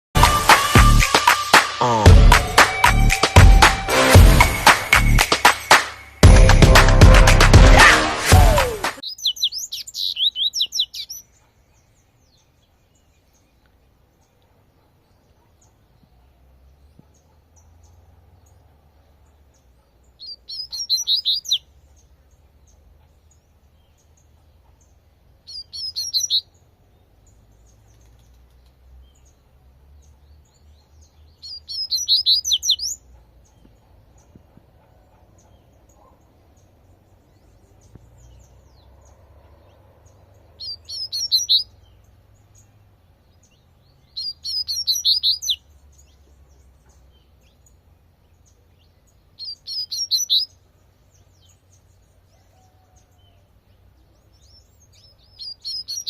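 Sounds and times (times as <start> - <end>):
bird whistling song: 8.4 - 11.3, 20.2 - 21.7, 25.5 - 26.5, 31.4 - 33.0, 40.6 - 41.8, 44.1 - 45.6, 49.4 - 50.5, 55.0 - 56.0.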